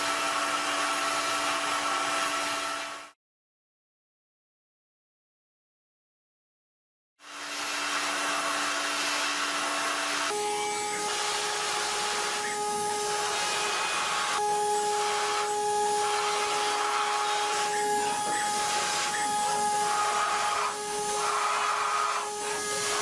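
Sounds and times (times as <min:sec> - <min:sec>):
milling machine cutting hiss: 0:07.3 - 0:23.0
spindle whine: 0:10.3 - 0:23.0.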